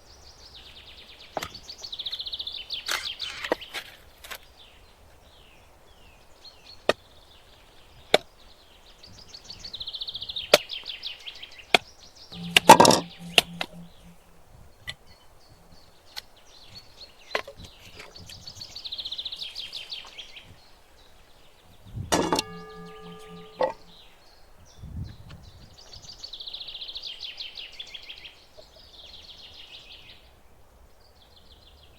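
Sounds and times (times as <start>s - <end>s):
sharp knocks: 22.2s - 23.9s.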